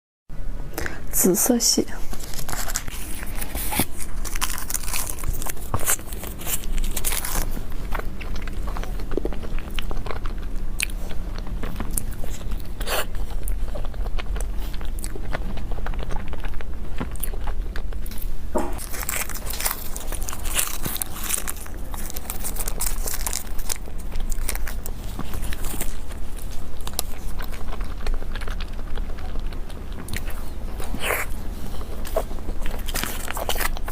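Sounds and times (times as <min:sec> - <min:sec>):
biting and chewing: 0:02.1 - 0:33.9.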